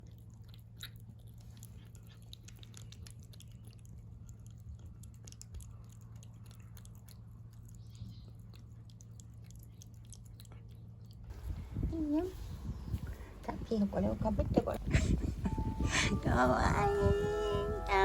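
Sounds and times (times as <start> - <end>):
cat chewing food: 0.0 - 11.9
steady low hum: 0.0 - 18.0.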